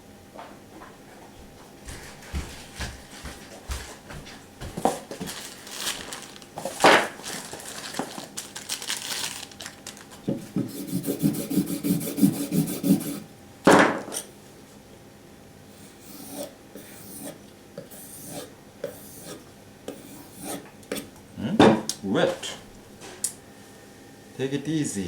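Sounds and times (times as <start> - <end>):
knife sharpening scraping strokes: 15.8 - 21.1.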